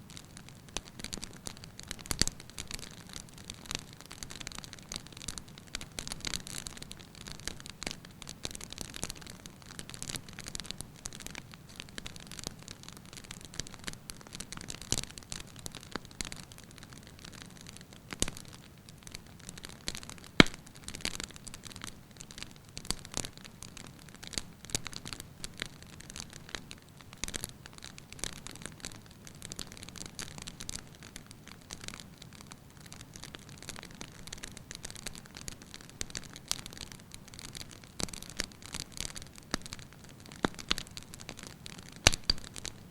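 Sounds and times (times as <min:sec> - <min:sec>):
wood fire crackling: 0:00.0 - 0:42.9
sharp pop of fire: 0:20.4 - 0:20.6, 0:42.0 - 0:42.7.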